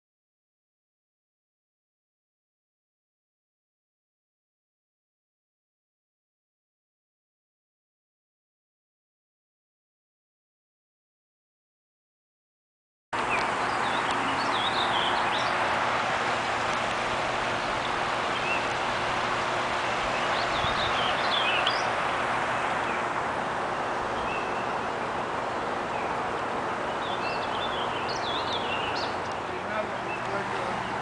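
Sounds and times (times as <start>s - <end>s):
songbirds chirping: 13.2s - 31.0s
steady rushing noise: 13.2s - 31.0s.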